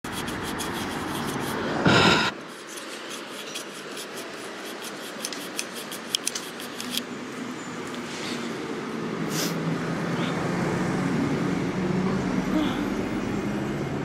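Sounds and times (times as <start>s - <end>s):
scratchy rubbing with squeaks: 0.0s - 1.7s, 2.3s - 7.1s
fingertip rubbing on microphone: 0.1s - 7.0s.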